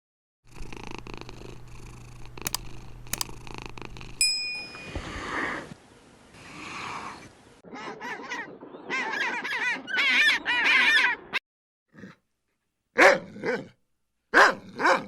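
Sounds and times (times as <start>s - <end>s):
small clicks: 2.4s - 3.4s
bright ding: 4.2s - 5.5s.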